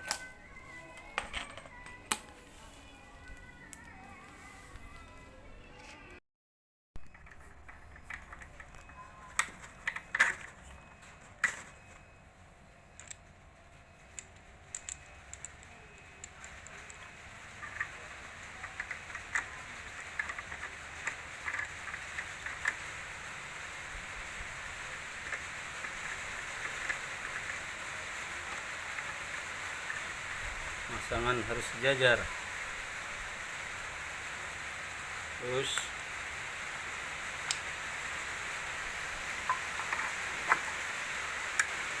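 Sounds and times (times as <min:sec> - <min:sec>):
plastic parts clicking and knocking: 0:07.0 - 0:11.8, 0:14.1 - 0:23.1, 0:25.2 - 0:30.2, 0:39.3 - 0:41.8.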